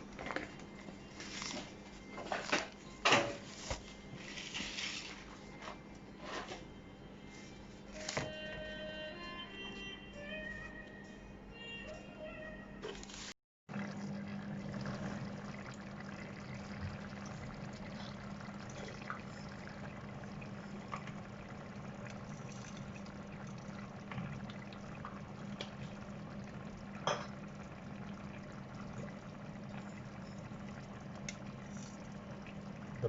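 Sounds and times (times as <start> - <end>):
curry bubbling in a pan: 13.7 - 33.0.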